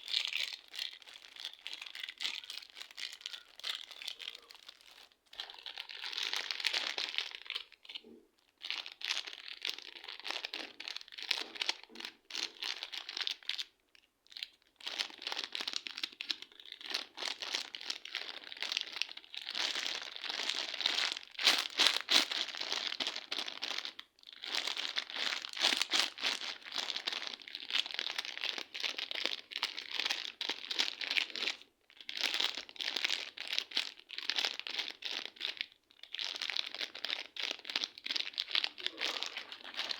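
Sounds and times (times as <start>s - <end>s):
slime crackling and popping: 14.3s - 39.9s.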